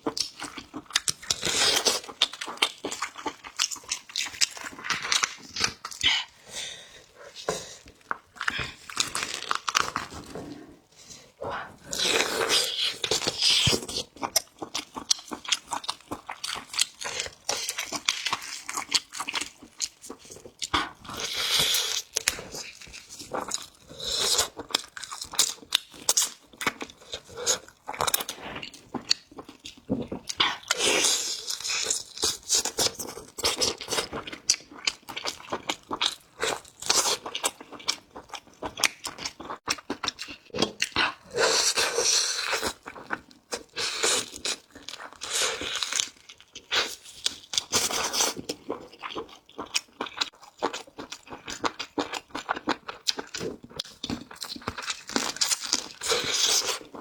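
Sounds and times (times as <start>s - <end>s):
chewing and crunching chicken: 0.0s - 10.8s, 11.6s - 57.0s.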